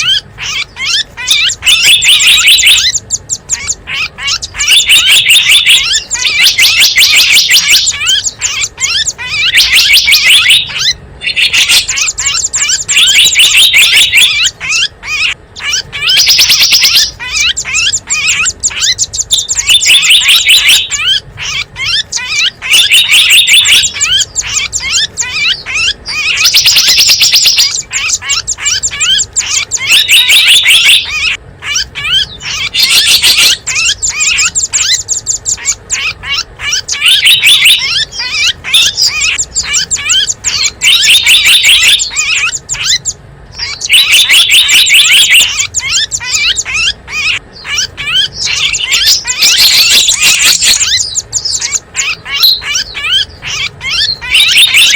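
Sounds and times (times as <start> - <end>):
songbirds chirping and trilling: 0.0 - 54.9.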